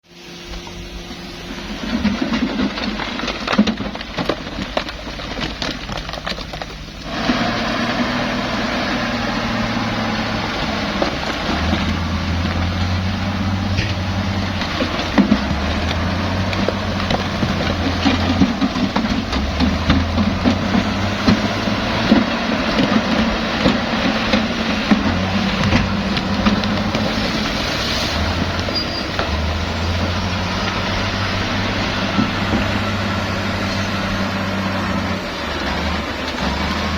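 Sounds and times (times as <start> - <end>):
bulldozer diesel engine: 0.0 - 36.9
knocks and clanks: 11.0 - 34.4.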